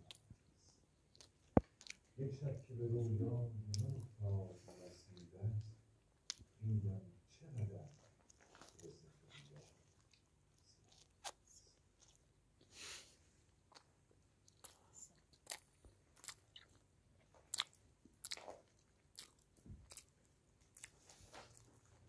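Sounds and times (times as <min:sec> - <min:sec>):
chewing crunchy food: 0:01.0 - 0:02.6, 0:03.7 - 0:05.3, 0:07.8 - 0:12.3, 0:13.7 - 0:22.0.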